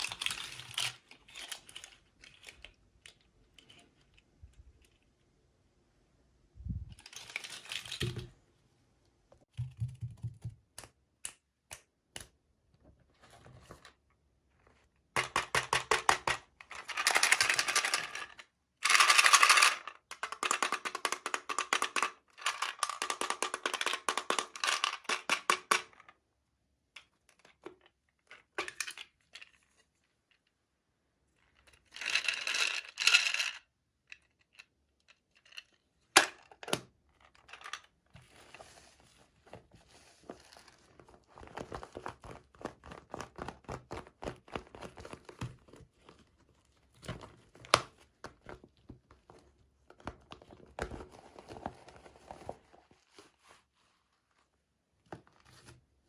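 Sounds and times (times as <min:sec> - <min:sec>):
plastic toy pieces clicking: 0:15.2 - 0:25.9.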